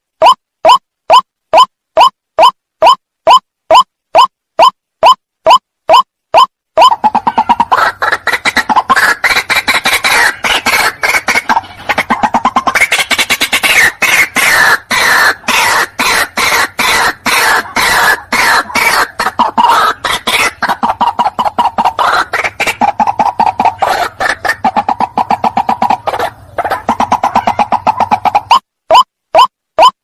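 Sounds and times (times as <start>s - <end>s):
waterhen calling: 6.8s - 29.9s.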